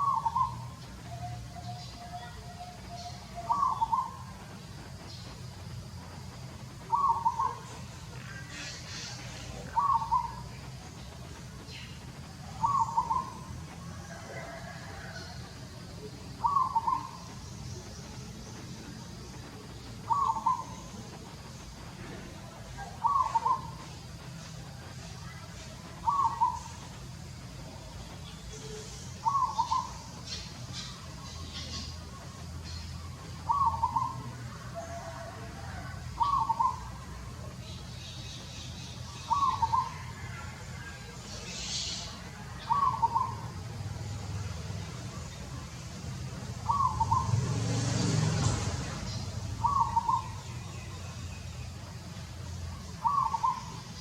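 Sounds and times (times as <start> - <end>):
bird cooing calls: 0.0 - 4.2, 6.9 - 10.4, 12.6 - 13.4, 16.4 - 17.2, 20.1 - 20.9, 22.8 - 23.8, 26.0 - 26.7, 29.2 - 30.0, 33.5 - 34.2, 36.2 - 36.9, 42.6 - 43.4, 46.6 - 47.4, 49.6 - 50.4, 53.0 - 53.8
steady low hum: 0.0 - 54.0.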